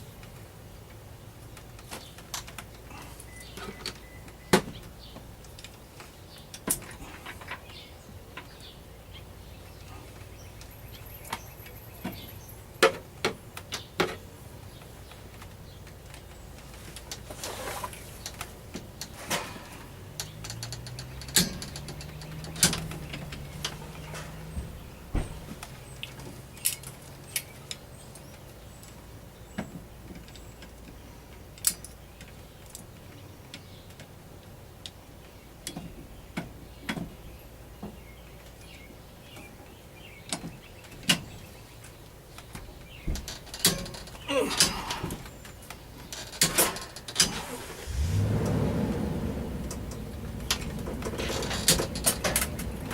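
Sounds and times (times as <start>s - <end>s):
hand tools and metal parts clanking: 5.5s - 7.8s, 14.8s - 29.0s, 42.5s - 47.8s, 49.6s - 52.9s.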